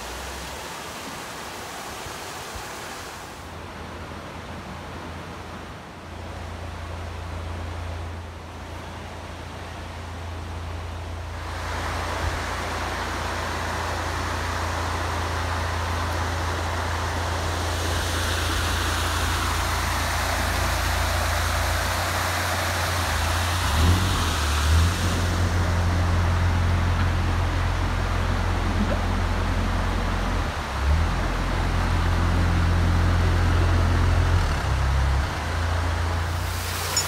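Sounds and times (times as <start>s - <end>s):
rushing water: 0.0s - 37.0s
diesel engine running: 10.3s - 37.0s.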